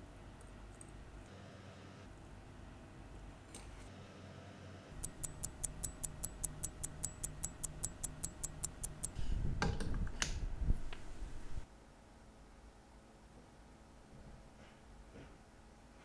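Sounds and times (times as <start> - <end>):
watch movement ticking: 5.0 - 9.2.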